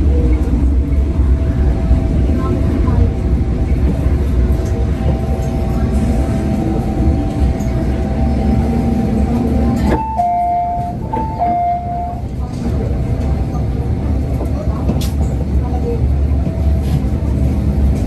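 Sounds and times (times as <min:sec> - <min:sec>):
train rumbling with a whine: 0:00.0 - 0:18.0
two-note tone: 0:09.9 - 0:12.2.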